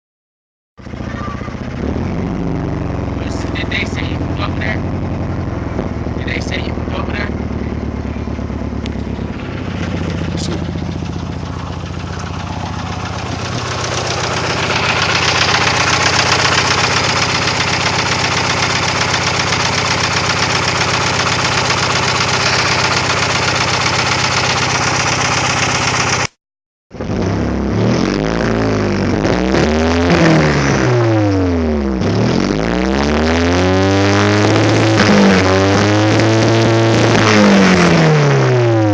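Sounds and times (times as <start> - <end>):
car engine idling roughly: 0.8 - 26.4.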